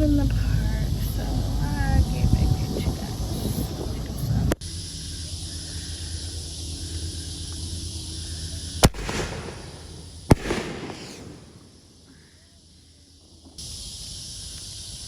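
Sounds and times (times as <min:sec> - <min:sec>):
steady hiss: 0:00.0 - 0:15.0
firework bangs: 0:08.8 - 0:12.1
firework crackling fizz: 0:08.8 - 0:12.1.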